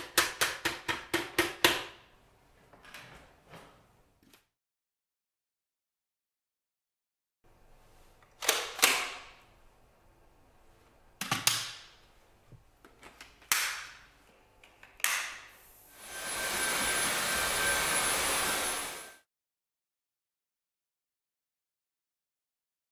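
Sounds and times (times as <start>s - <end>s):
vacuum cleaner running: 15.6s - 19.3s.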